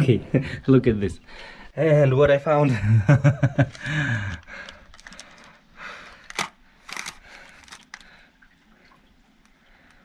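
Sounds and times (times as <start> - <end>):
clicks and rustles of small objects: 3.6 - 8.2.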